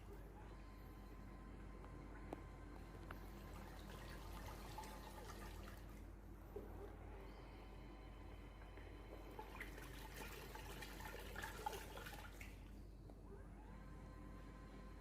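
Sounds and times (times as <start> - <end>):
steady low hum: 0.0 - 15.0
water sloshing and dripping: 3.4 - 6.1, 9.2 - 12.7.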